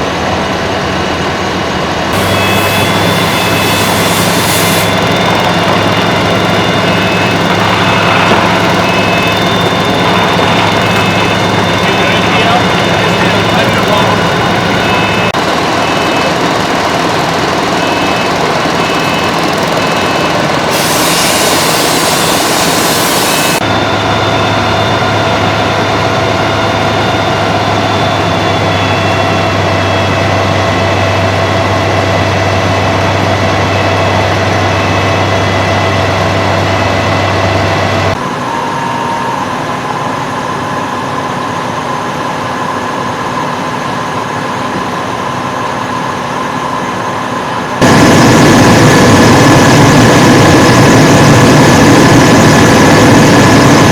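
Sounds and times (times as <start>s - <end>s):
diesel engine running: 0.0s - 53.9s
loud hiss: 2.2s - 5.1s, 20.7s - 23.6s.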